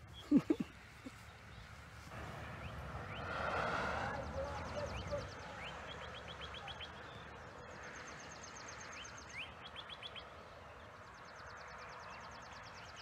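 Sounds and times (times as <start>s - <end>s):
small songbirds singing: 4.1s - 13.0s.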